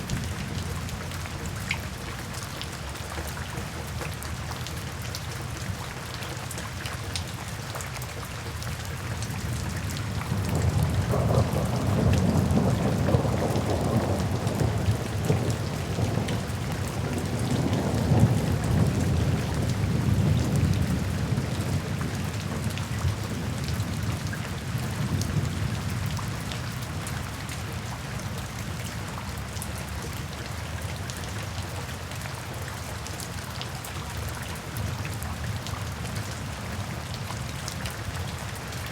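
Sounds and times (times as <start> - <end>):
steady rainfall: 0.0 - 38.9
roll of thunder: 10.2 - 23.6.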